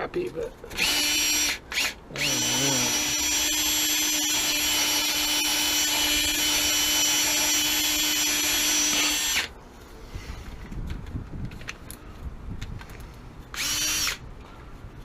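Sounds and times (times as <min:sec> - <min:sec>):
power drill whining: 0:00.8 - 0:09.5, 0:13.5 - 0:14.2.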